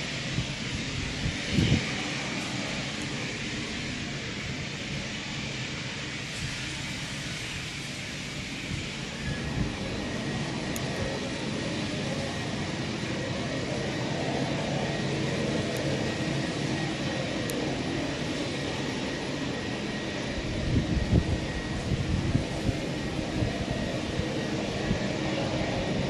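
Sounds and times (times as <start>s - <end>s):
jet engines running up: 0.0s - 26.0s.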